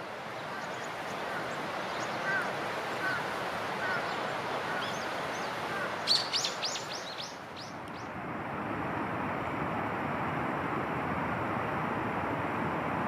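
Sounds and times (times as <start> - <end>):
steady background hiss: 0.0 - 13.0
faint bird chirps: 6.1 - 8.1.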